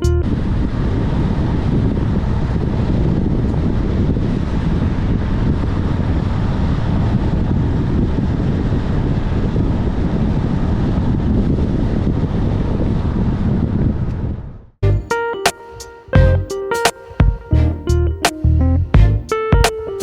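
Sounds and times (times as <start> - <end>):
wind buffeting microphone: 0.0 - 14.7
road and wind noise: 0.0 - 15.1.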